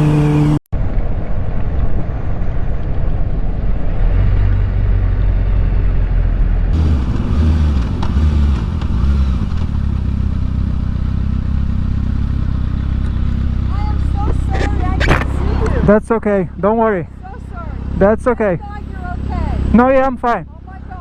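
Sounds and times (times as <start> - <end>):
motorcycle engine running: 0.0 - 0.6, 5.2 - 21.0
wind noise on microphone: 0.8 - 9.4.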